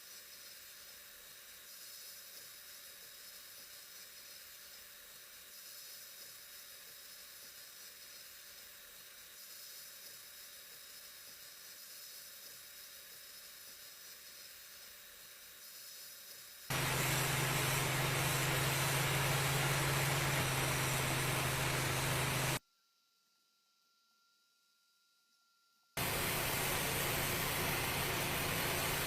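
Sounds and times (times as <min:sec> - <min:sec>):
faint steady hiss: 0:00.0 - 0:29.0
powered machine rushing: 0:16.7 - 0:22.6, 0:26.0 - 0:29.0.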